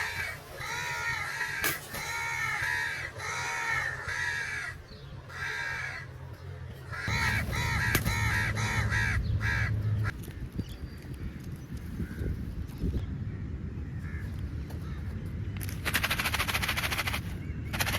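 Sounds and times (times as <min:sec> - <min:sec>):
crows cawing: 0:00.0 - 0:06.2, 0:06.8 - 0:10.2.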